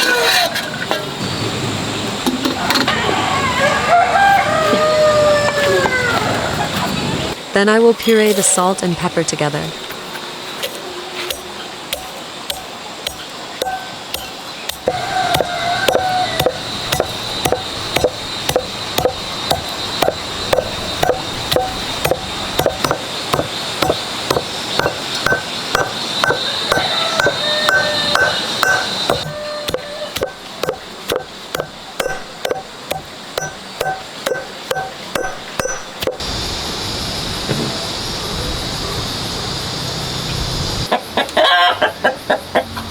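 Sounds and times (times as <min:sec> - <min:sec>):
pestle pounding in mortar: 0:11.3 - 0:36.2
steady hiss: 0:30.0 - 0:40.9.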